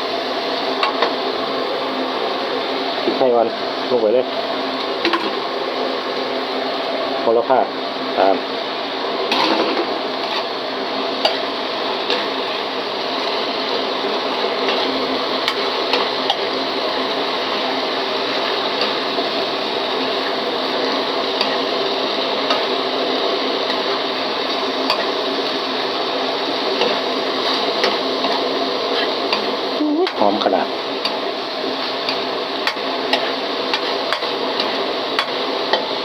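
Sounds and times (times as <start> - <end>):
meat sizzling in a pan: 0.0 - 36.0
spatula scraping a pan: 9.2 - 12.4, 26.6 - 29.6, 31.0 - 35.9.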